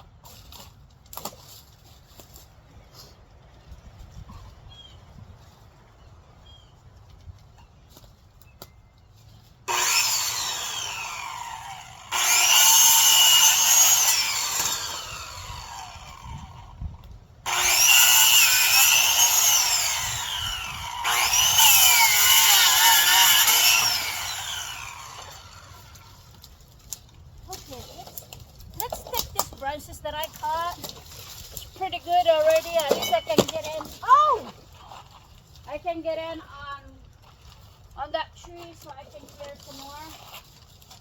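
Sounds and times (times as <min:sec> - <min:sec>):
electric saw cutting branches: 0:09.7 - 0:16.8, 0:17.5 - 0:26.5.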